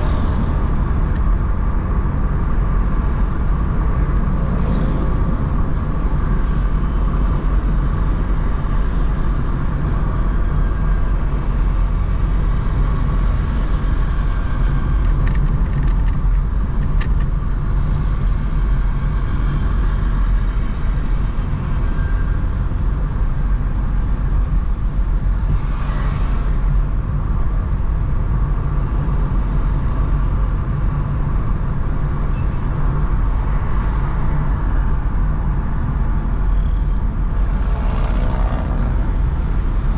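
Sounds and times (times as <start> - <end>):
car road rumble: 0.0 - 39.9.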